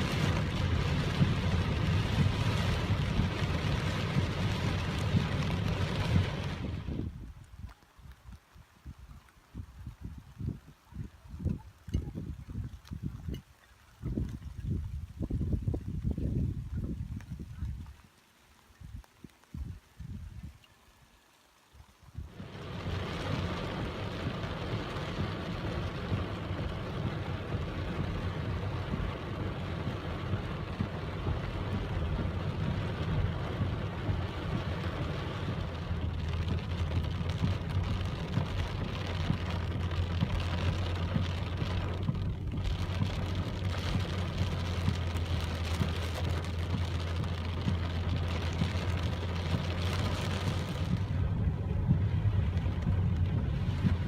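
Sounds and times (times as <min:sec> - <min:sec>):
low rumble: 0:00.0 - 0:07.4, 0:22.2 - 0:54.0
steady rainfall: 0:00.0 - 0:54.0.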